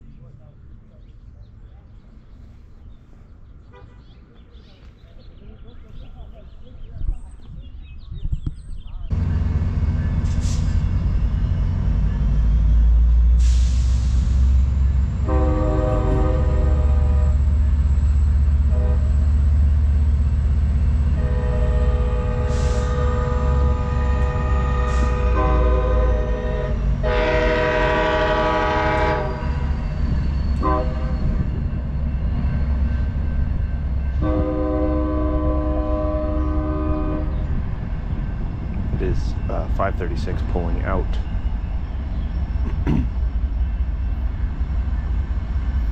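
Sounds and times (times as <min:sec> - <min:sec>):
diesel locomotive rumbling: 0:00.0 - 0:45.9
train horn chord: 0:15.2 - 0:17.7, 0:18.6 - 0:19.3, 0:21.1 - 0:29.6, 0:30.6 - 0:31.4, 0:34.1 - 0:37.5.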